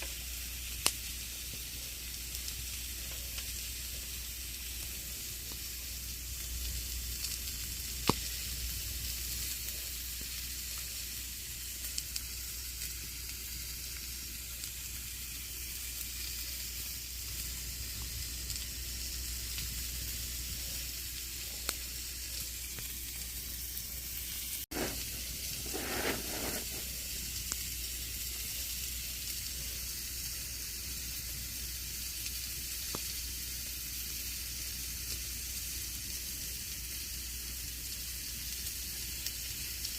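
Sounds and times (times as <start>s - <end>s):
campfire hissing and crackling: 0.0s - 39.9s
fire pops: 0.8s - 3.6s, 4.7s - 11.1s, 15.9s - 23.9s, 24.5s - 27.7s, 32.9s - 33.2s.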